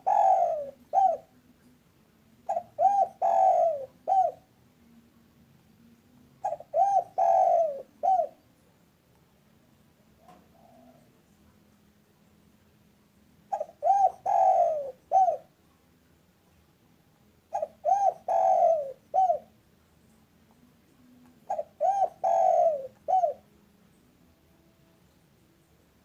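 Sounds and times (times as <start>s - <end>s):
dove cooing: 0.0s - 1.4s, 2.4s - 4.5s, 6.4s - 8.4s, 10.2s - 11.2s, 13.5s - 15.6s, 17.5s - 19.6s, 21.1s - 23.6s.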